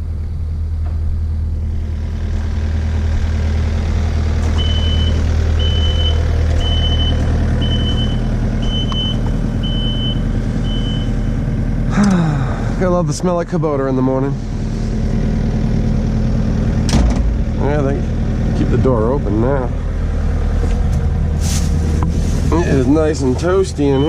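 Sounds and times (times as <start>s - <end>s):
excavator diesel engine running: 0.0s - 24.0s
high warning beep: 4.6s - 11.4s, 23.8s - 24.0s.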